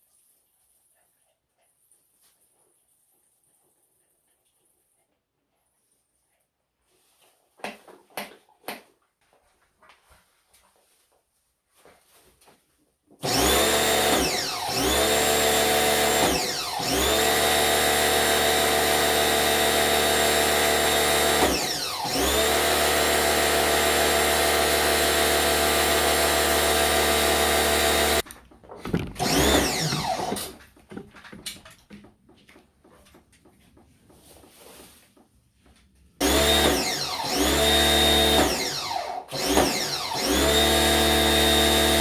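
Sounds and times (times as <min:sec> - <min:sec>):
handheld electric motor tool running: 0:13.2 - 0:28.2, 0:29.2 - 0:30.6, 0:36.2 - 0:42.0.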